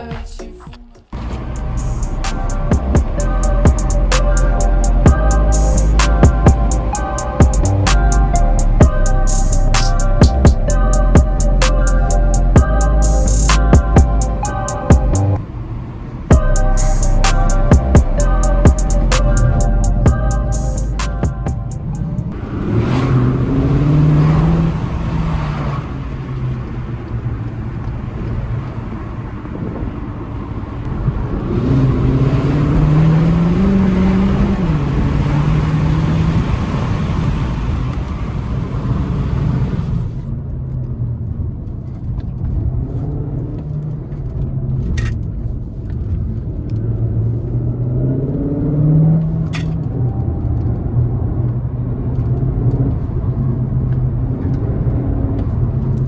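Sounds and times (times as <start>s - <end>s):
road and wind noise: 1.1s - 56.0s
car engine accelerating: 1.2s - 40.2s.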